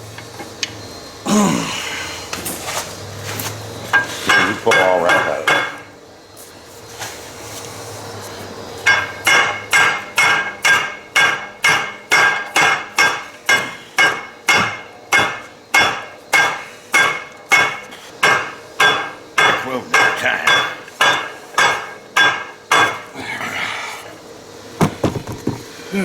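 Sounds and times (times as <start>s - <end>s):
hammer striking metal: 3.9s - 5.9s, 8.8s - 23.1s.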